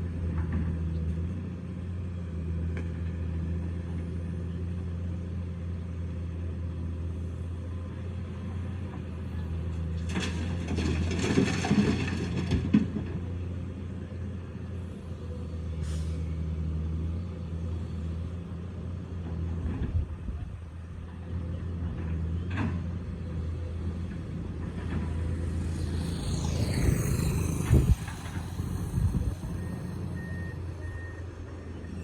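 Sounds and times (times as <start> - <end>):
excavator diesel engine running: 21.3 - 32.0.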